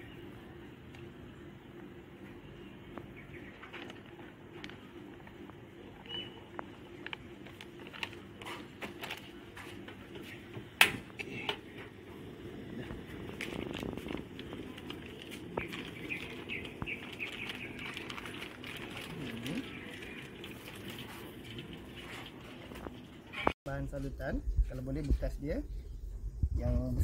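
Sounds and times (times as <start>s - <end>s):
small birds chirping: 2.4s - 3.8s, 14.5s - 21.1s.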